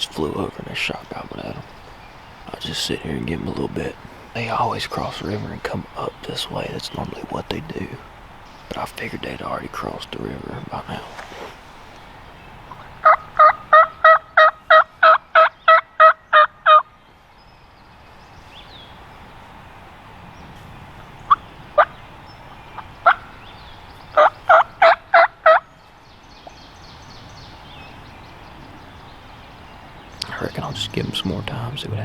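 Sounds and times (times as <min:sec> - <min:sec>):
turkey yelps: 0:12.7 - 0:16.8, 0:24.2 - 0:25.6.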